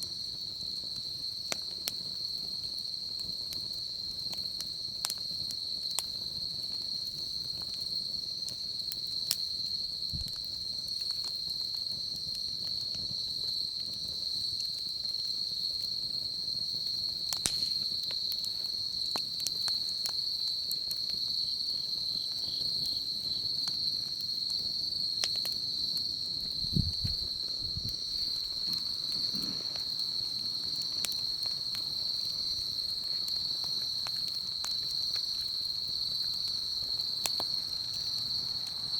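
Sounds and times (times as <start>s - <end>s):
insects trilling: 0.0s - 38.9s
wood fire crackling: 0.0s - 38.9s
low thuds: 26.5s - 29.7s.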